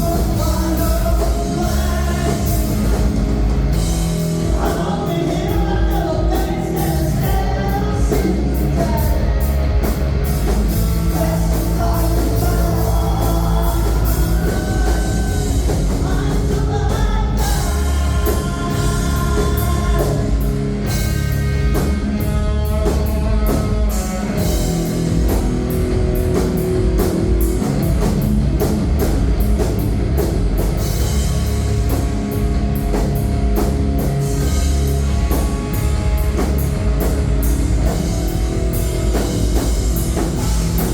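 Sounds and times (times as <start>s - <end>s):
person singing: 0.0s - 2.9s, 4.4s - 9.6s, 11.0s - 20.6s
live rock band playing: 0.0s - 40.9s.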